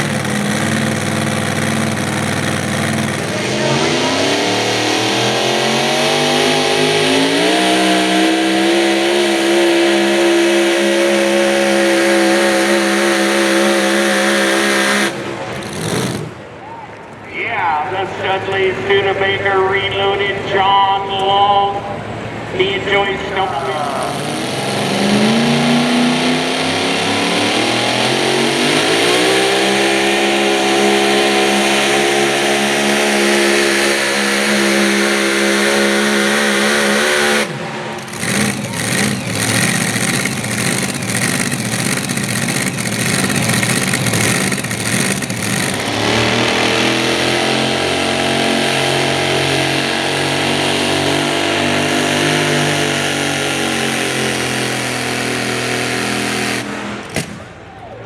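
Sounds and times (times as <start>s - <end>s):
engine popping: 0.0s - 4.8s, 10.0s - 17.2s, 36.0s - 47.0s
truck engine at full throttle: 0.0s - 58.0s.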